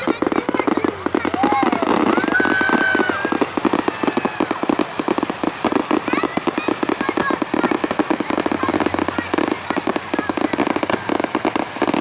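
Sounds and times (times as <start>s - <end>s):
firework whistle: 0.0s - 12.0s
fireworks crackling: 0.0s - 12.0s.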